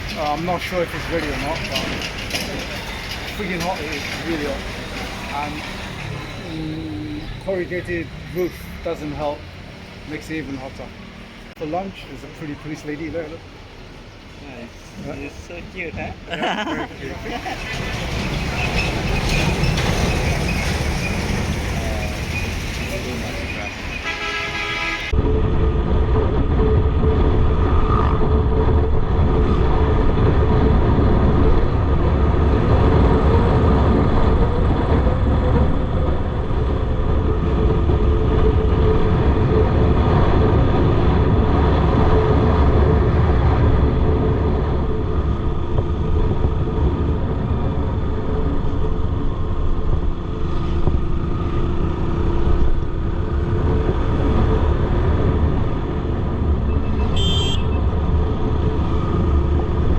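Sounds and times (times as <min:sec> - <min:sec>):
wind rushing over microphone: 0:25.1 - 0:59.9.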